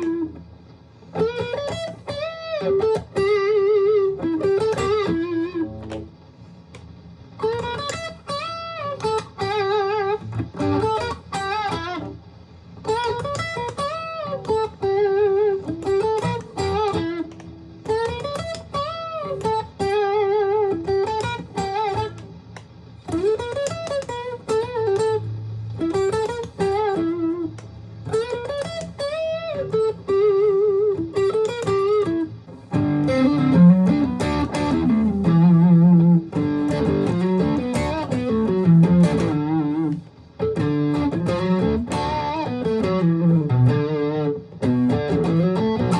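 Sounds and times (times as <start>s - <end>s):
electric guitar playing: 0.0s - 45.9s.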